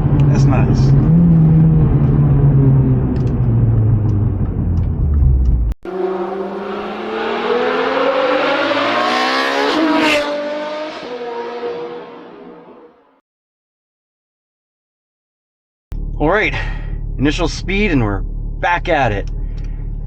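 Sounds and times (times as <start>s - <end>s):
car engine revving: 0.0s - 13.1s.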